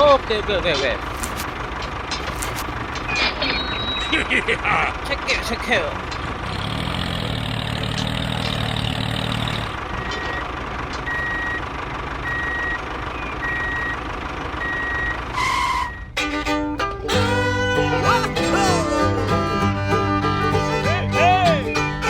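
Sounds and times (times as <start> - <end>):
vehicle engine humming: 0.0 - 22.0
reversing alarm beeping: 3.1 - 4.3, 10.0 - 16.2
music: 16.2 - 22.0.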